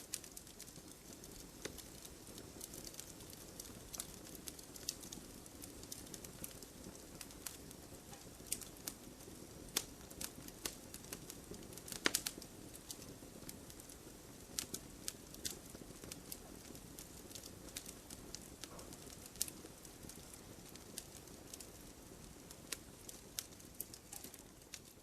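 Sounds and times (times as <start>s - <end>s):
firewood crackling and popping: 0.0s - 25.0s
low rumble of flames: 0.0s - 25.0s.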